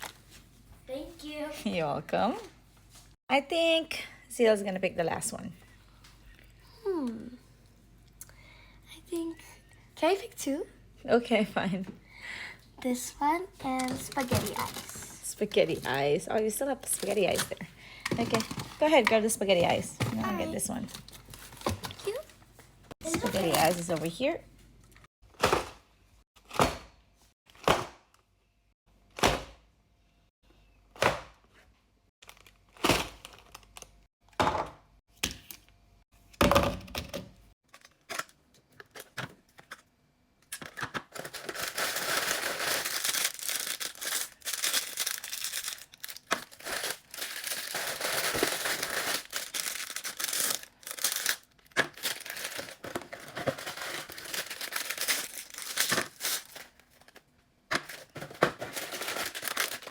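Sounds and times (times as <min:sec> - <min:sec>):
plastic wrappers crinkling: 0:13.7 - 0:16.0, 0:20.2 - 0:22.3, 0:23.0 - 0:24.2, 0:41.1 - 0:59.9.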